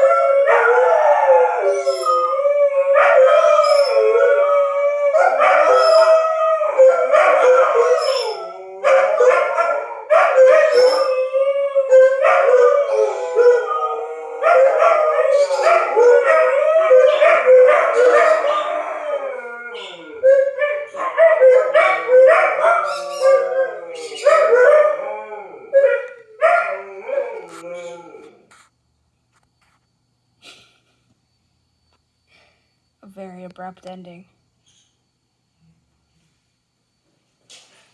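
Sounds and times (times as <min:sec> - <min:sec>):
dogs howling: 0:00.0 - 0:28.5.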